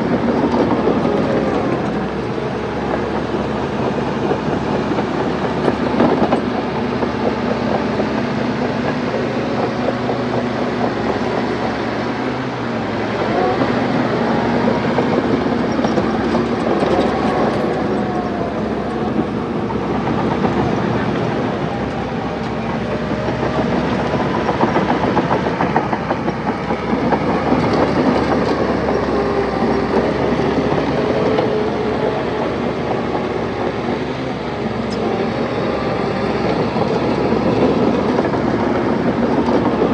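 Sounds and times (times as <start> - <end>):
diesel engine under load: 0.0 - 39.9
steel tracks clattering: 0.0 - 39.9.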